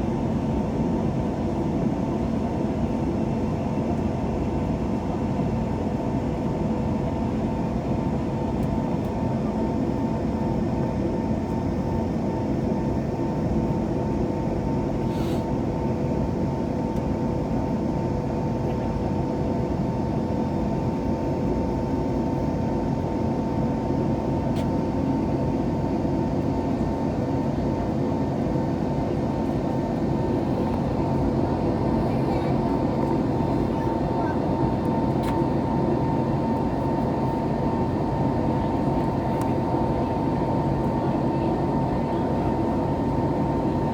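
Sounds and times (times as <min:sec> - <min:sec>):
airplane cabin rumble: 0:26.5 - 0:43.9.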